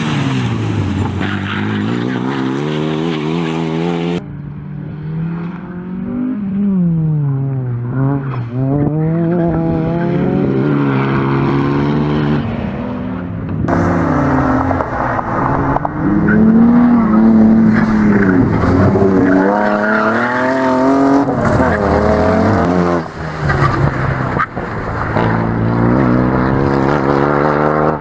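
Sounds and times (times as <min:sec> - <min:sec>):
car engine revving hard: 0:13.7 - 0:23.2, 0:25.1 - 0:28.0.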